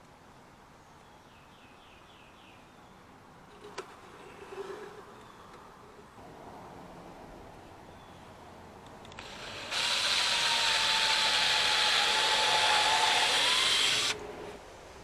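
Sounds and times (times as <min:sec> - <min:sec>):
power tool motor whine: 0:09.2 - 0:14.6.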